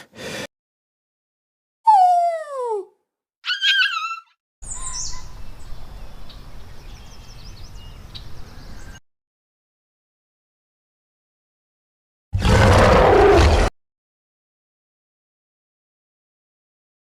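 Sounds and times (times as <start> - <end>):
descending cry: 3.4 - 4.3
wavering squeal: 3.4 - 5.2
small birds chirping: 3.5 - 9.0.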